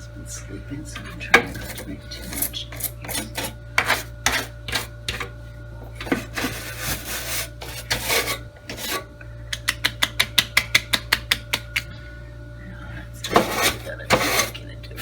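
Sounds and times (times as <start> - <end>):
brush scrubbing: 1.0 - 5.3, 6.0 - 9.1, 13.3 - 14.6.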